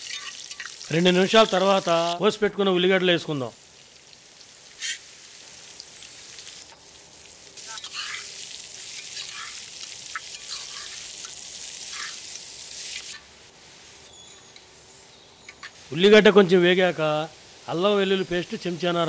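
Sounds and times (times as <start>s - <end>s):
vegetables sizzling in hot oil: 0.0s - 14.1s.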